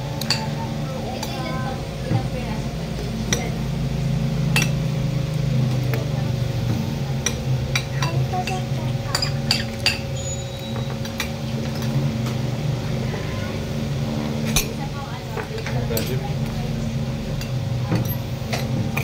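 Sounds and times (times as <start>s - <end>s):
steady low hum: 0.0s - 19.0s
cutlery clinking against plates: 4.6s - 4.8s, 15.4s - 16.2s.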